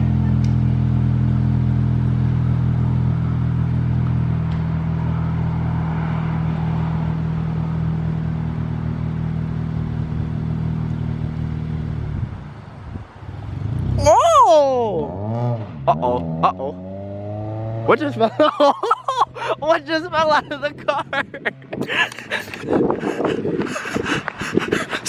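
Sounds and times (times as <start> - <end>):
car engine running at low revs: 0.0 - 14.2.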